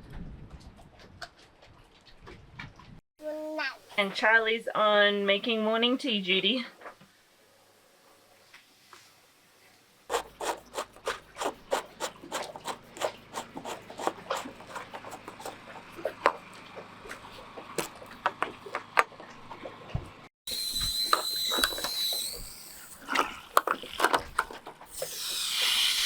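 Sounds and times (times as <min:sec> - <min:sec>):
rubbing scraping and tapping objects: 0:10.1 - 0:20.1, 0:20.8 - 0:25.4.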